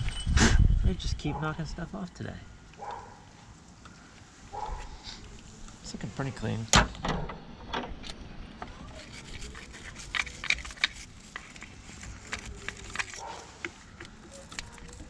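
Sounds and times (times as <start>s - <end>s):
wire brush scraping battery terminal: 8.0s - 15.0s.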